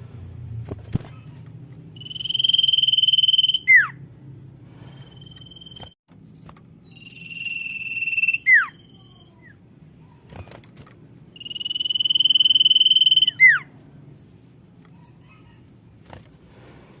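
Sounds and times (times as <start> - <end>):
bird trilled whistle call: 2.0 - 4.0, 6.8 - 9.1, 11.4 - 13.7.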